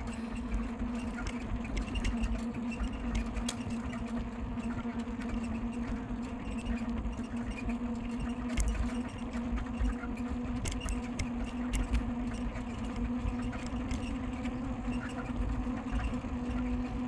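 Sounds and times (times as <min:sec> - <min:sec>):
bicycle mechanical whir: 0:00.0 - 0:17.0
sharp clicks and rattles: 0:10.6 - 0:14.1.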